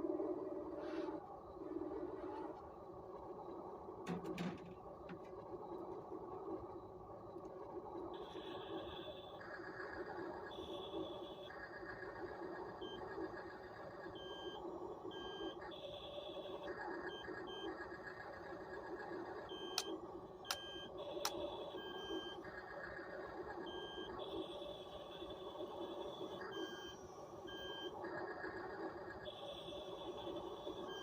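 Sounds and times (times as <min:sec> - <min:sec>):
electronic beeps: 0:19.3 - 0:31.0
sharp clicks: 0:20.5 - 0:21.4.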